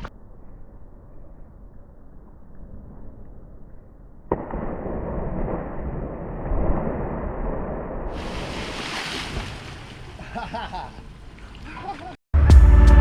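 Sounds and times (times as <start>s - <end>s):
loud splash: 4.4s - 10.3s.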